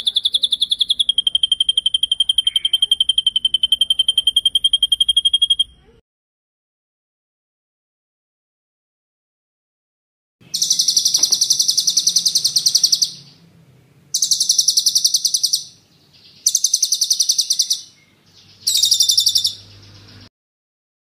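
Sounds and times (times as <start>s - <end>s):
songbird rolling trills: 0.0s - 5.7s, 10.5s - 13.5s, 14.1s - 20.3s.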